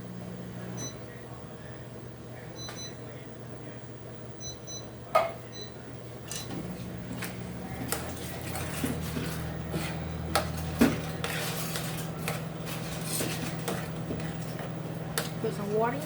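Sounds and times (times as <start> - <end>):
steady low hum: 0.0 - 16.0
utensils clinking and scraping: 6.2 - 16.0.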